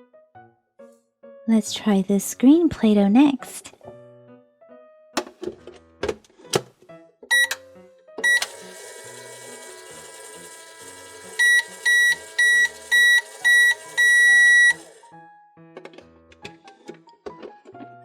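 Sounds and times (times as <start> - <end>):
keypad beeps: 7.3 - 7.6, 8.2 - 8.6, 11.4 - 14.9
microwave finish beeps: 7.3 - 7.6, 8.2 - 15.0
microwave humming: 7.3 - 15.2.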